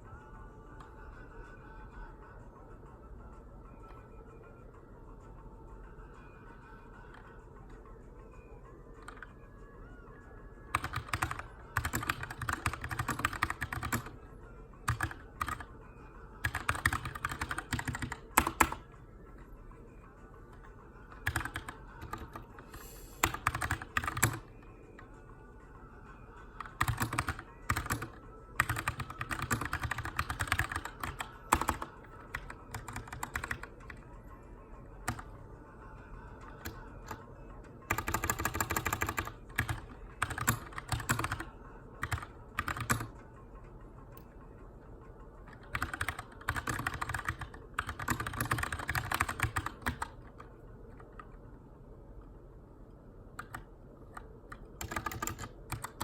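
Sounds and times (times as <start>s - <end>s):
mechanical keyboard typing: 10.7s - 14.2s, 14.9s - 15.7s, 16.4s - 18.9s, 21.1s - 24.5s, 26.6s - 34.0s, 35.0s - 35.3s, 36.4s - 37.2s, 37.9s - 43.2s, 45.5s - 51.4s, 53.4s - 56.0s.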